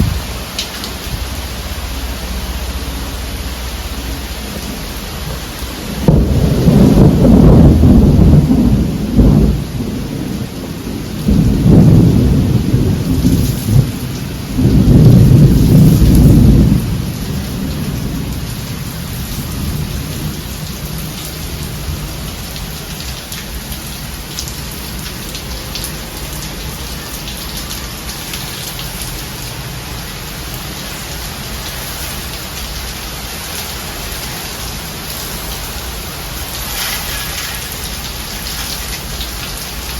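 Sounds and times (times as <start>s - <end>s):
thunder rumbling: 0.0s - 23.7s
heavy rain: 0.0s - 39.9s.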